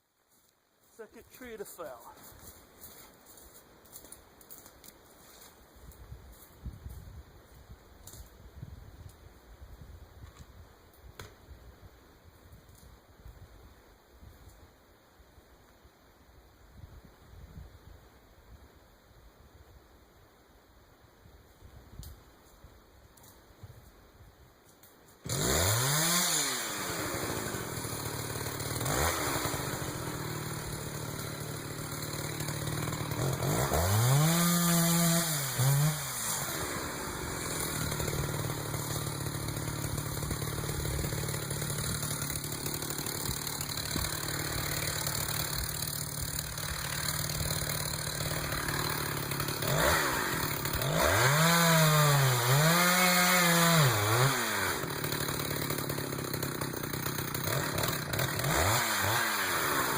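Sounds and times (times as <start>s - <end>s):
chainsaw revving: 25.2s - 59.9s.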